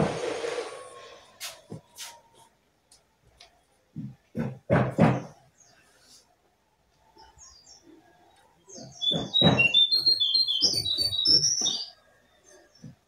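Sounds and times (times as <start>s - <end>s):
faint high bird chirps: 7.0s - 13.0s
bird calling loudly: 8.7s - 11.9s.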